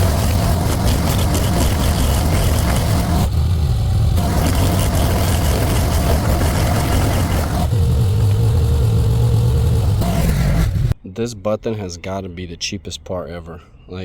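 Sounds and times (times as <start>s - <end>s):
small engine running: 0.0s - 10.9s.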